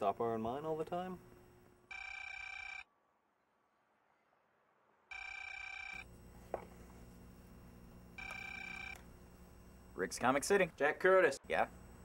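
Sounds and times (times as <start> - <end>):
electronic telephone ringing: 1.9 - 2.9, 5.1 - 6.1, 8.2 - 9.0.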